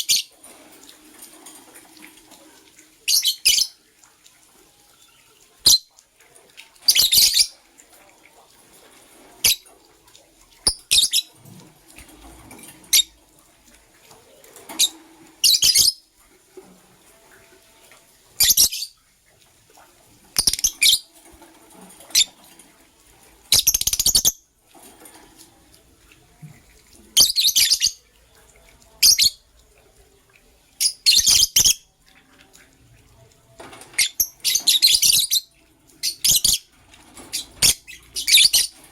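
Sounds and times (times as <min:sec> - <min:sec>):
birds chirping: 0:00.0 - 0:03.8, 0:06.8 - 0:07.7, 0:10.5 - 0:13.2, 0:20.3 - 0:21.2, 0:33.6 - 0:38.9.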